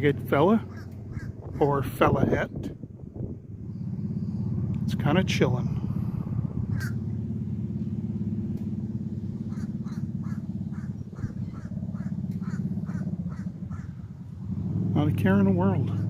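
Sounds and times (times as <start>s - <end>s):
steady low rumble: 0.0s - 16.0s
bird harsh crow-like calls: 0.7s - 1.6s, 6.7s - 7.1s, 9.4s - 14.2s.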